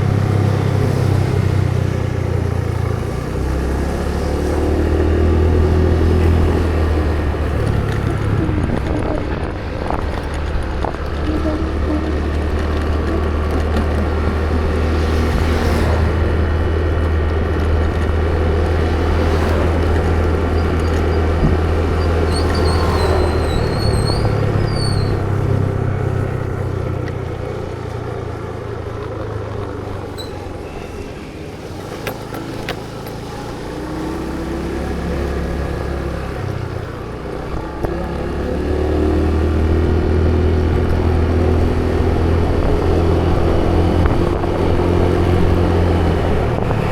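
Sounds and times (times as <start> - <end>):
road noise: 0.0 - 46.9
vehicle engine running: 0.0 - 46.9
brief high squeak: 20.6 - 25.3, 30.1 - 32.5.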